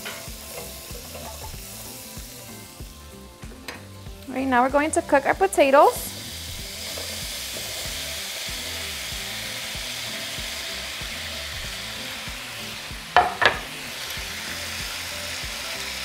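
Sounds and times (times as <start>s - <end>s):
potatoes sizzling in a frying pan: 0.0s - 16.0s
loud knocks: 13.2s - 13.7s.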